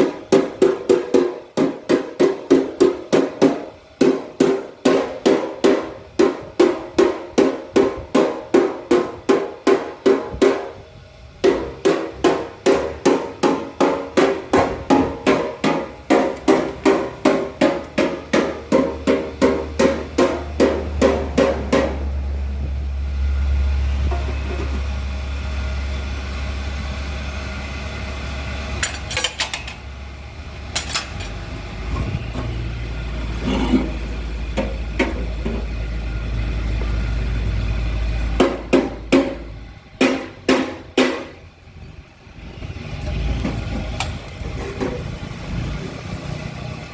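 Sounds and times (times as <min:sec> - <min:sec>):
low engine hum: 0:14.2 - 0:46.9.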